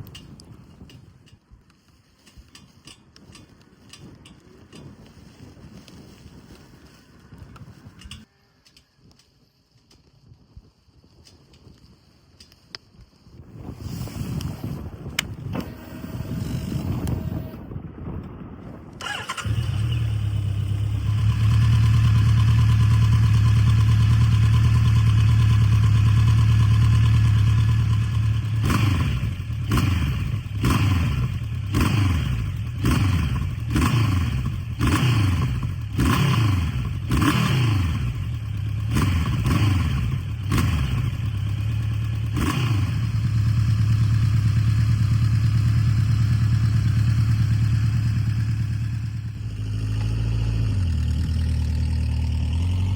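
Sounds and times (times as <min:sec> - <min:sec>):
engine throttle blips: 0:13.7 - 0:17.8
motorcycle engine idling: 0:19.0 - 0:52.9.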